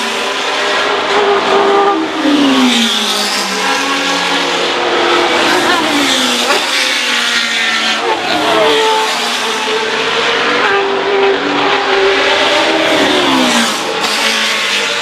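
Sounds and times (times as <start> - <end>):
racing car engines passing: 0.0 - 15.0.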